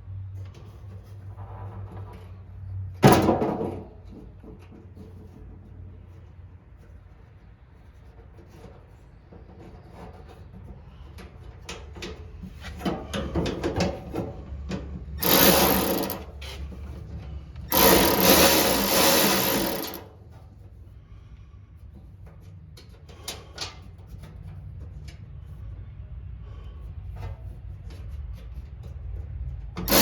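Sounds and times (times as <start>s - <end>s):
loud rasping bursts: 15.2s - 16.4s, 17.7s - 20.1s.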